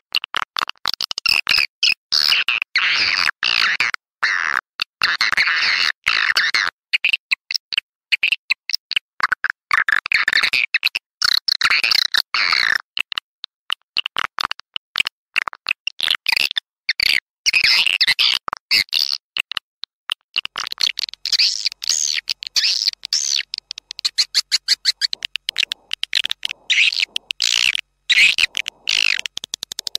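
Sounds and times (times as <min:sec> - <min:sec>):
swiftlets twittering chirps: 0:20.8 - 0:29.9.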